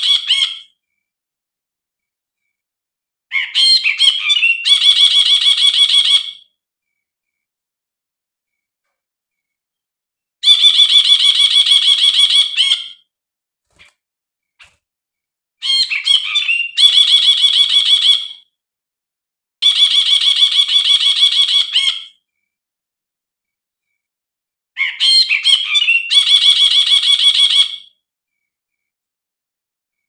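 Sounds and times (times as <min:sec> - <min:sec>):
bulbul chattering song: 0:00.0 - 0:00.8.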